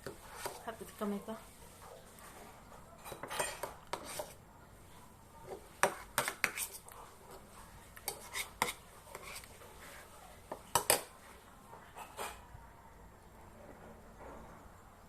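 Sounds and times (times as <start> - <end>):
utensils clinking on a dish: 3.0 - 4.2.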